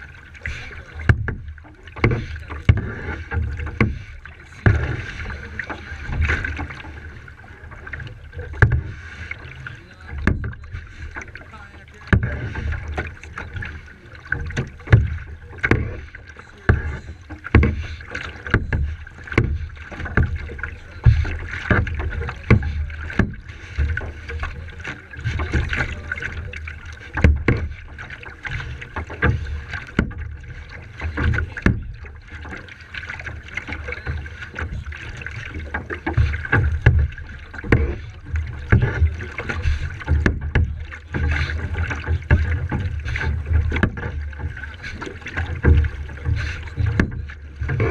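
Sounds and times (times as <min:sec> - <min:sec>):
paddle strokes splashing: 0:00.0 - 0:47.9.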